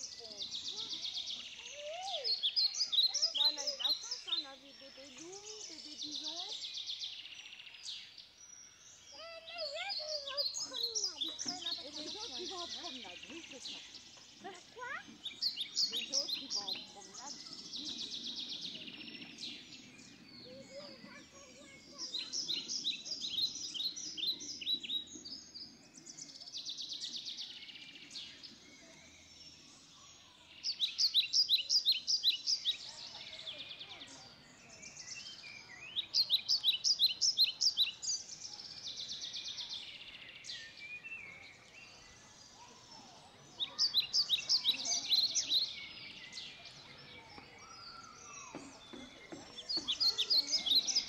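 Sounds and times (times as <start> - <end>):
faint outdoor background noise: 0.0 - 51.0
songbird singing: 0.0 - 51.0.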